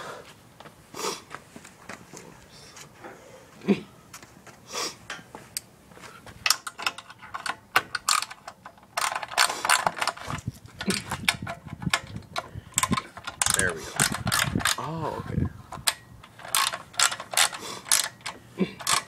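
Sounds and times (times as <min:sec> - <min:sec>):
tools and metal parts rattling: 0:06.4 - 0:15.0, 0:15.7 - 0:19.0.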